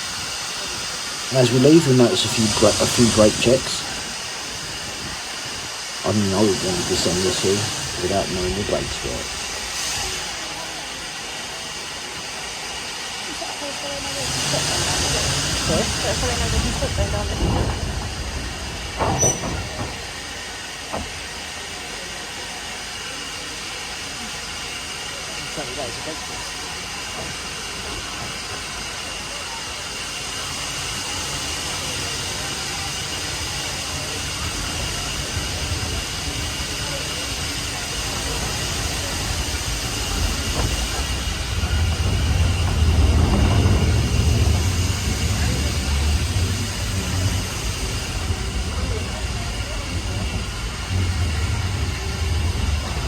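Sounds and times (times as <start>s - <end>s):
steam train hiss and rumble: 0.0s - 53.0s
wheels squealing: 15.4s - 20.1s
rolling stock knocks and clanks: 16.6s - 20.1s.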